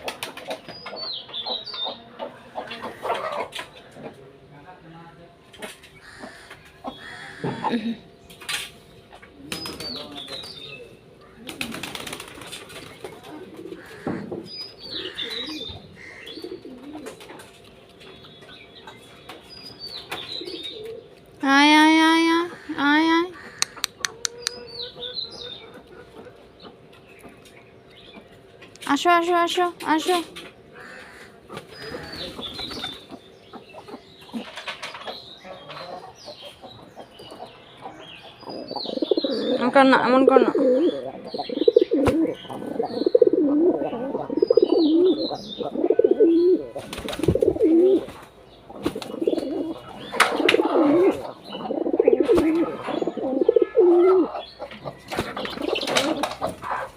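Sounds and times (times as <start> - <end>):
pigeons flapping wings: 0.0 - 0.6, 11.4 - 13.4, 46.8 - 48.2, 55.1 - 56.6
pigeons cooing: 9.4 - 17.6, 20.1 - 26.9, 30.7 - 56.9
sharp clicks: 23.6 - 24.6.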